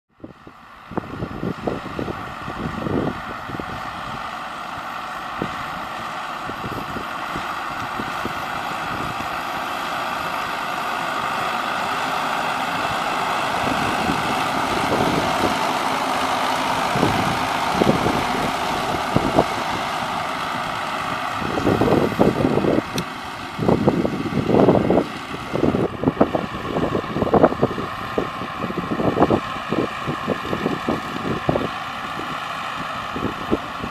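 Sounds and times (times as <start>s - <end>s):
tractor diesel engine running: 0.2s - 33.9s
sprayer hissing: 7.1s - 25.7s.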